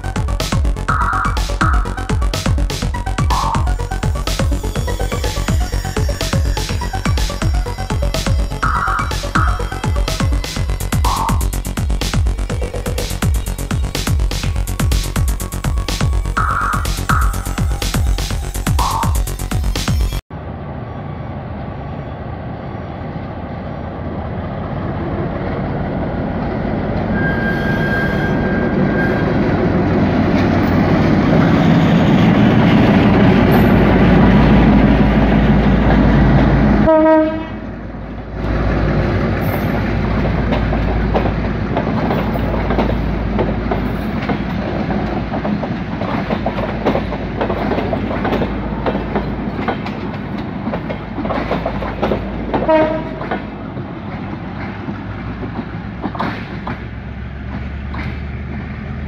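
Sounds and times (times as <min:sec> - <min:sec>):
diesel locomotive engine drone: 0:00.0 - 0:59.0
train wheels clattering over rail joints: 0:38.4 - 0:59.0.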